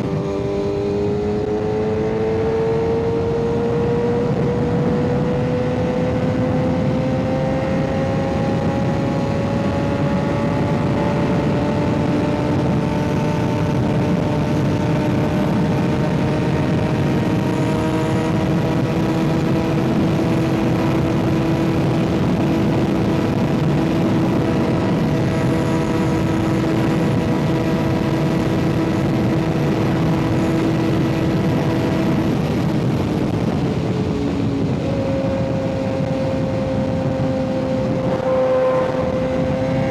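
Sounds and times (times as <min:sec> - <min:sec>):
motorcycle engine running: 0:00.0 - 0:39.9
wind rush: 0:00.0 - 0:39.9.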